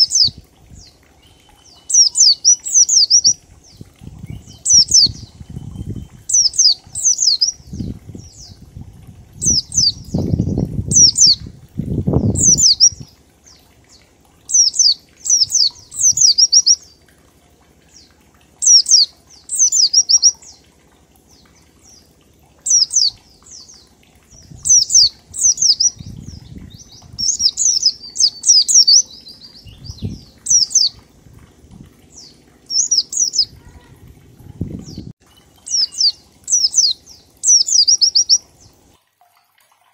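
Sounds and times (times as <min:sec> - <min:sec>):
bird singing high rapid notes: 0:00.0 - 0:08.6, 0:09.4 - 0:13.2, 0:14.5 - 0:17.0, 0:18.0 - 0:20.6, 0:22.7 - 0:31.2, 0:32.0 - 0:33.9, 0:34.7 - 0:38.9
low fluttering bursts: 0:18.6 - 0:38.9.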